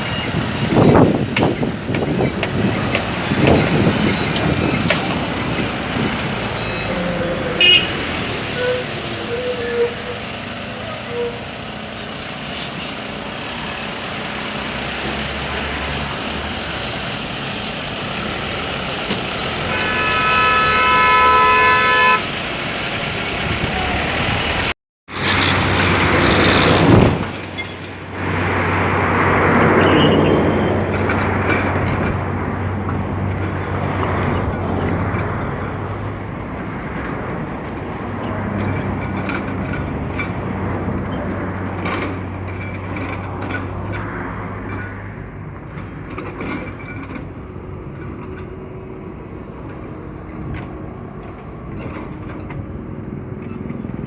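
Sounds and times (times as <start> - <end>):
heavy traffic noise: 0.0 - 54.0
vehicle horn: 6.9 - 10.1, 19.6 - 22.3.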